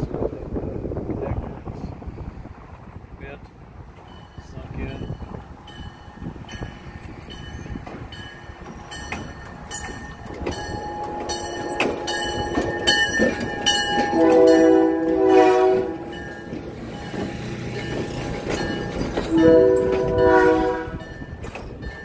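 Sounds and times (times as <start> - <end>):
train rolling past: 0.0 - 22.0
wheels clicking over rail joints: 2.8 - 22.0
train horn chord: 10.8 - 16.4, 19.3 - 21.2.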